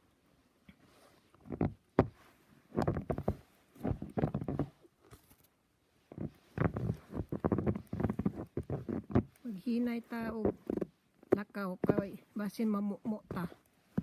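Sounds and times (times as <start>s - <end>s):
footsteps crunching through snow: 6.1s - 12.7s.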